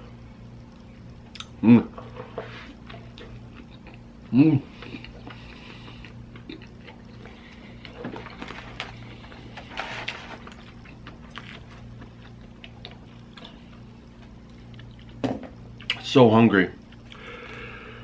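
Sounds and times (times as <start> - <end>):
steady low hum: 0.0 - 18.0
person chewing with mouth clicks: 1.3 - 1.6, 2.6 - 8.4.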